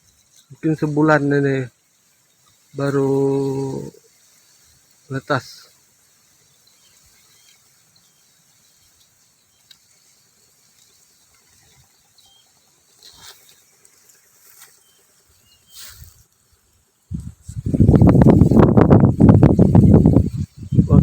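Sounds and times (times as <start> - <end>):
faint steady high hiss: 0.0 - 21.0
faint high chirps: 6.5 - 12.8.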